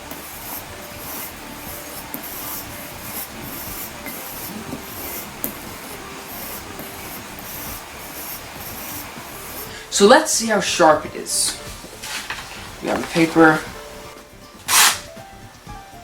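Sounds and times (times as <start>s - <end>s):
knife blade stropping on leather: 0.4s - 9.7s, 11.5s - 13.8s, 14.7s - 15.1s.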